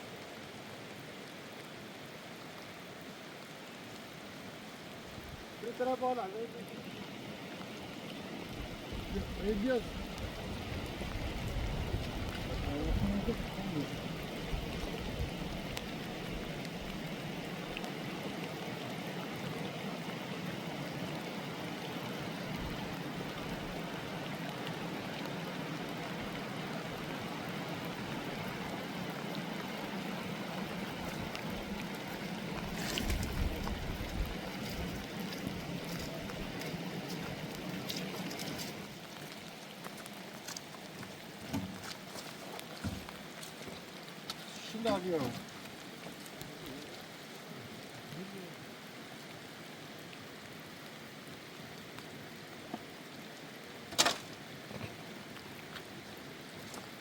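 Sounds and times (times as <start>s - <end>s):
rain falling: 0.0s - 57.0s
running water: 0.0s - 57.0s
wind rumble on microphone: 8.5s - 17.0s, 32.5s - 36.6s
raindrops striking sharply: 53.8s - 54.5s.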